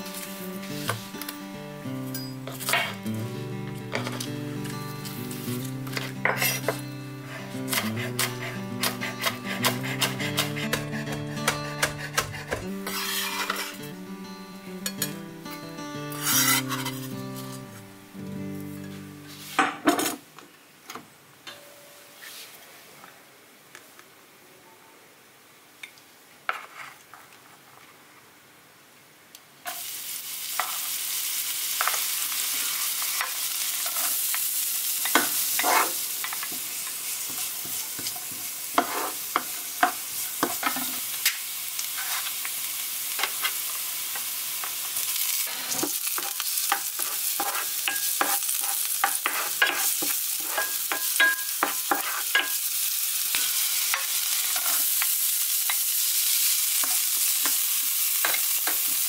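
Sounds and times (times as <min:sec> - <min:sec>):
wooden spoon scraping a pan: 0:07.3 - 0:10.9, 0:11.8 - 0:13.8, 0:16.2 - 0:17.1, 0:35.1 - 0:36.6, 0:37.3 - 0:39.8, 0:41.8 - 0:42.4, 0:45.4 - 0:52.5
garlic sizzling in hot oil: 0:11.8 - 0:13.8, 0:16.2 - 0:17.1, 0:29.6 - 0:59.0.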